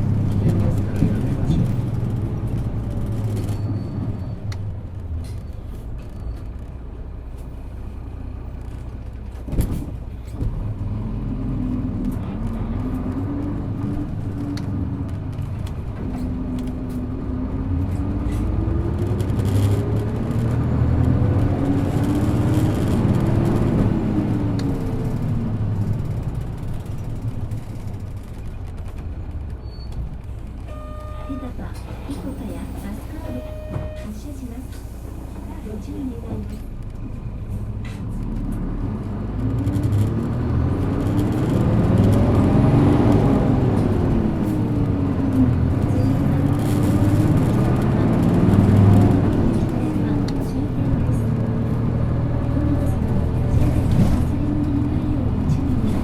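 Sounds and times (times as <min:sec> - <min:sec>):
bus diesel engine revving: 0:09.7 - 0:28.4, 0:31.3 - 0:56.0.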